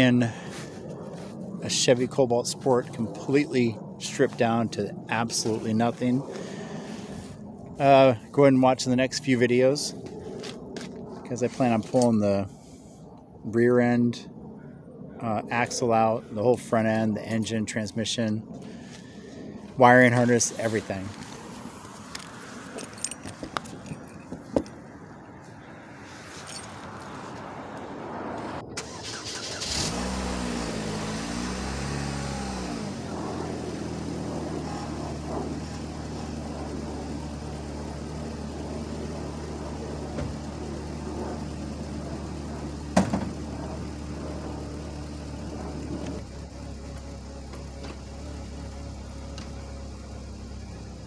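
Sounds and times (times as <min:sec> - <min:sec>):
footsteps: 0:10.0 - 0:12.0
car engine starting and idling: 0:27.5 - 0:51.0.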